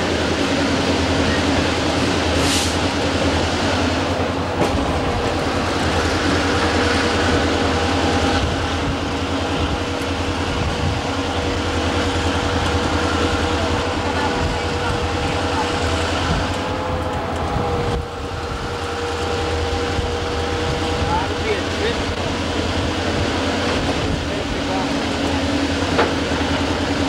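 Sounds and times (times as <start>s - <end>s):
train cars rumbling and rattling: 0.0s - 27.0s
brief hiss: 2.4s - 2.8s.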